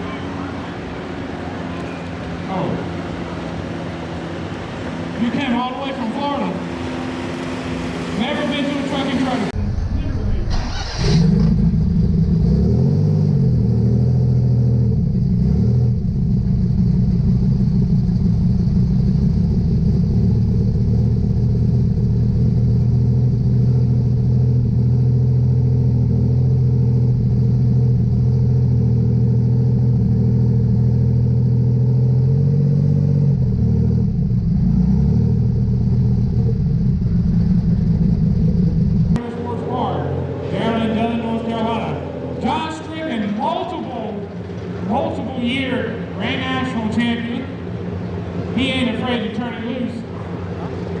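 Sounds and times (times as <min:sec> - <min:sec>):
diesel tractor engine at full throttle: 0:00.0 - 0:51.0.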